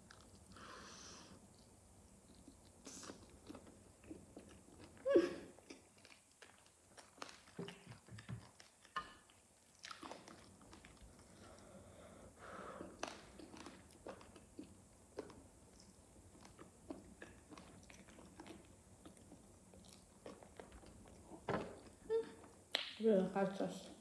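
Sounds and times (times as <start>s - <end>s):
person chewing chicken: 1.4s - 11.8s, 12.9s - 21.3s.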